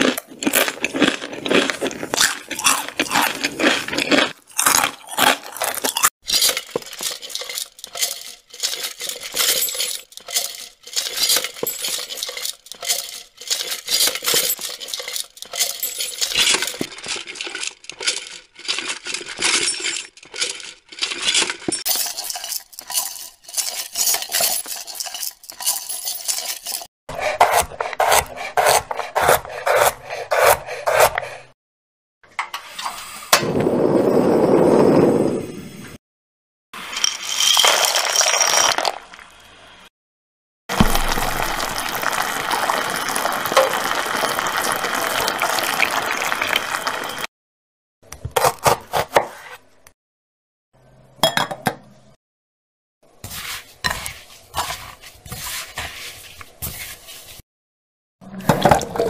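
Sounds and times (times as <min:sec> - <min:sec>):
small objects clinking and rattling: 0:00.0 - 0:26.9, 0:36.8 - 0:39.2, 0:40.7 - 0:47.3.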